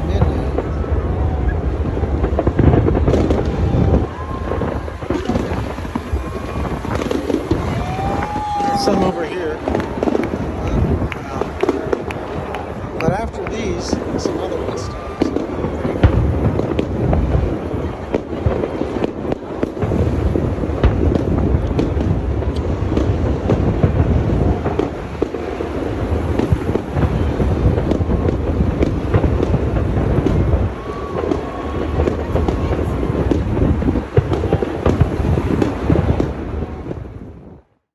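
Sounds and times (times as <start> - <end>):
fireworks booms and cracks: 0.0 - 37.8
firework whistle: 3.0 - 10.4, 24.5 - 36.9.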